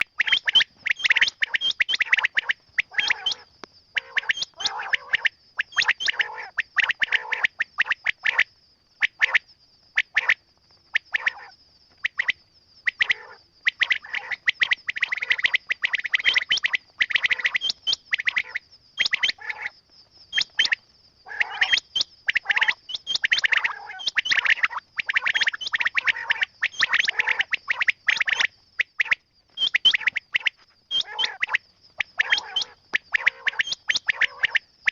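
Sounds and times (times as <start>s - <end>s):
quail chirping calls: 0.0s - 10.4s, 11.0s - 34.9s.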